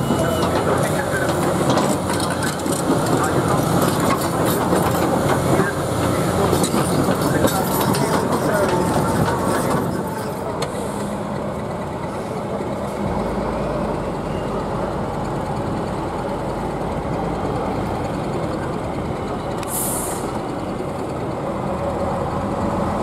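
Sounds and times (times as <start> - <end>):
heavy truck engine running: 0.0 - 23.0.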